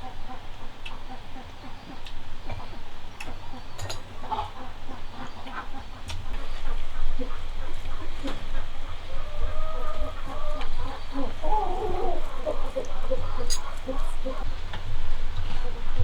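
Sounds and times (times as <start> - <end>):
poultry calling: 3.4 - 16.0.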